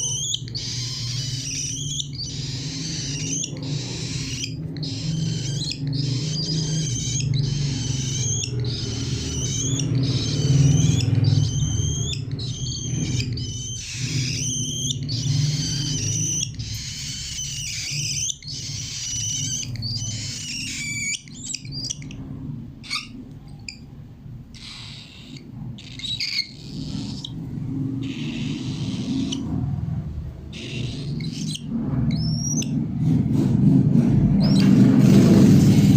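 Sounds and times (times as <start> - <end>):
cockatiel chirping: 0.0 - 29.6, 30.4 - 32.8, 34.4 - 35.9
steady low hum: 0.0 - 35.9.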